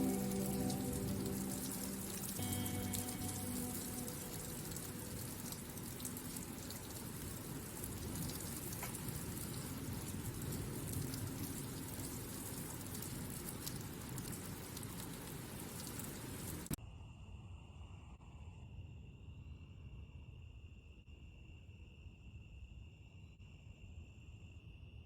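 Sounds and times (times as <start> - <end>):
steady rain: 0.0 - 16.8.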